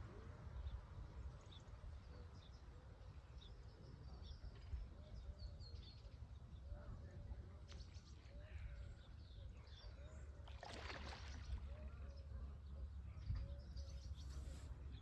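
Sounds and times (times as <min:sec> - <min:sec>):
faint bird chirps: 0:11.4 - 0:15.0.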